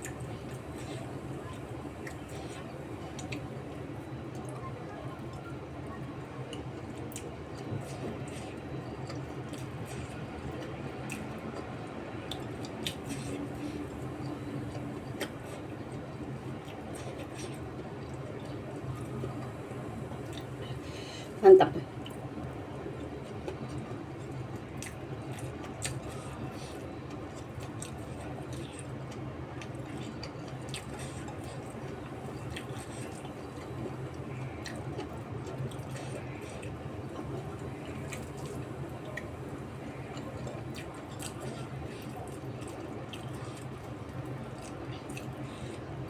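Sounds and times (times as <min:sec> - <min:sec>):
person chewing food: 0:06.5 - 0:18.6, 0:23.2 - 0:39.3, 0:40.1 - 0:45.9.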